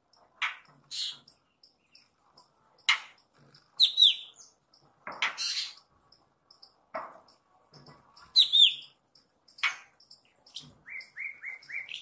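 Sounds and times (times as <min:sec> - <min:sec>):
harsh rasping bird calls: 0:00.4 - 0:02.2, 0:02.8 - 0:06.8, 0:08.2 - 0:12.0
faint high ticking: 0:05.7 - 0:12.0.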